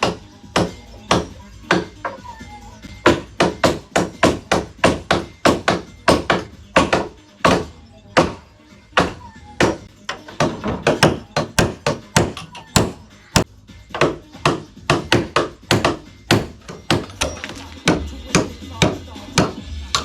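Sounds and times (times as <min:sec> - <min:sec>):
hammer striking nails into wood: 0:03.0 - 0:08.4, 0:14.0 - 0:19.6.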